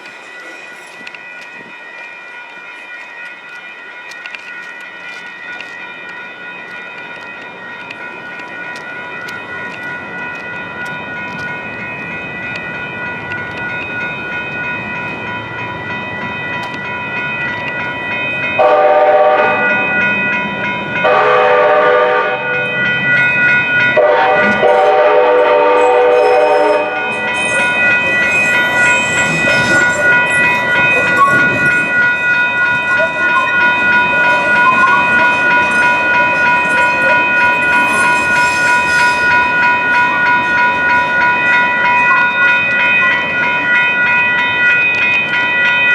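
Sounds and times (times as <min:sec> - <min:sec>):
crossing warning bells ringing: 0:00.0 - 0:45.9
train horn blasts: 0:18.6 - 0:19.7, 0:21.0 - 0:22.7, 0:24.0 - 0:27.8
high-pitched wheel noise: 0:22.6 - 0:45.9
rail clatter: 0:22.6 - 0:45.9.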